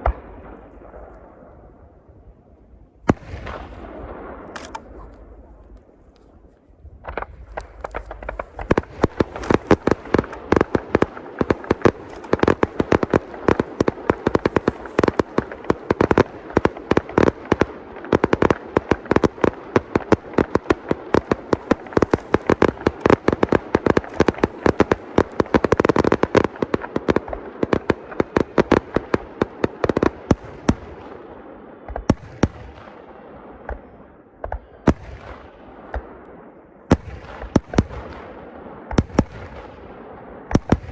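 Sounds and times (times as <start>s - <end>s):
fireworks bangs and crackling: 0.0s - 2.3s, 3.0s - 40.9s.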